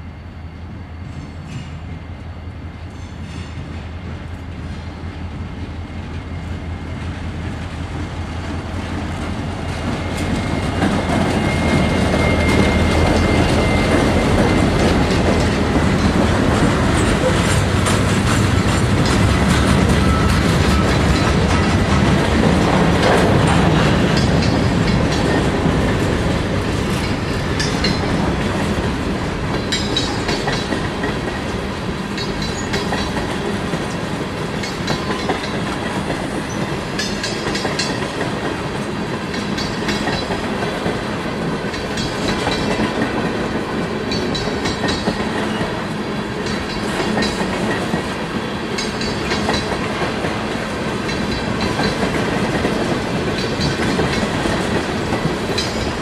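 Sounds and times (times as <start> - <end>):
rumble of train wheels on rail: 0.0 - 56.0
wheels clicking over rail joints: 9.3 - 28.9, 29.5 - 31.5, 41.6 - 45.7, 46.4 - 56.0.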